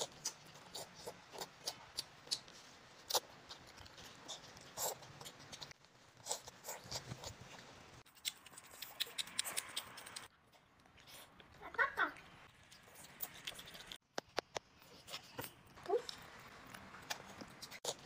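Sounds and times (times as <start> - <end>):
child eating clicks and taps: 8.1 - 11.6, 12.2 - 18.0.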